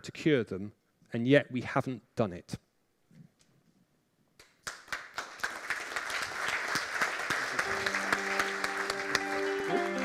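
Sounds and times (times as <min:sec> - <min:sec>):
audience applause: 0:04.6 - 0:10.0.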